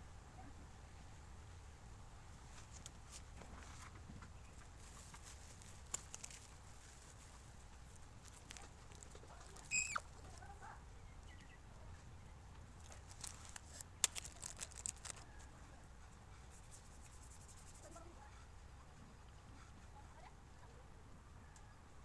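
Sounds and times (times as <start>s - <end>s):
faint clicks and taps: 2.5s - 10.6s, 12.5s - 15.4s
short high squeak: 9.6s - 10.1s.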